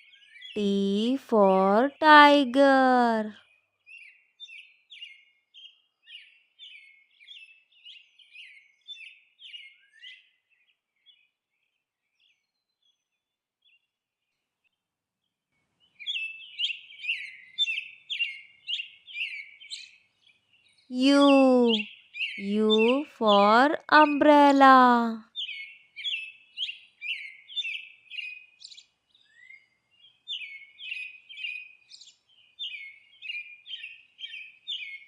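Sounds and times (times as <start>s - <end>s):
small birds chirping: 15.9s - 35.0s.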